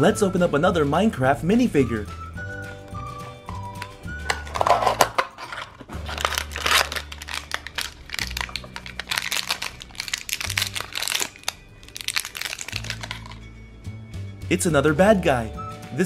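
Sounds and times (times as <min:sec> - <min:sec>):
foil wrapper crinkling and tearing: 0:04.3 - 0:13.5.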